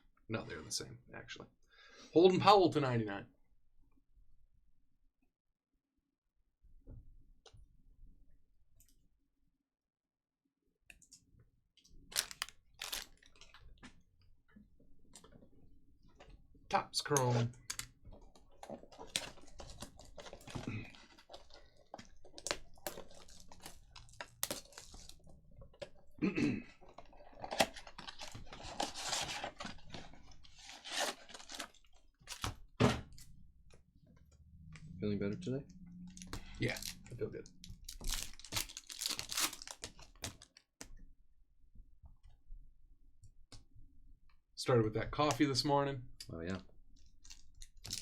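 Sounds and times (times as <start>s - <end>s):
wrapper tearing and crinkling: 12.1s - 13.6s, 18.7s - 25.3s, 27.0s - 32.5s, 36.1s - 40.6s, 47.2s - 48.0s.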